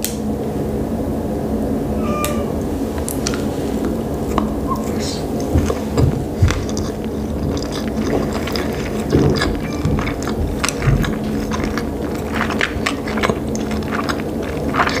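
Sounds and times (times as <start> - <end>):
steady low hum: 0.0 - 15.0
wet chewing mouth clicks: 3.1 - 15.0.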